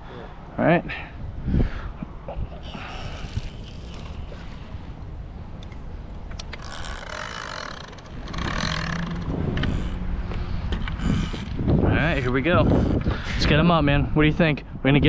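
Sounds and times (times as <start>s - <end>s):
engine running: 5.6s - 11.8s.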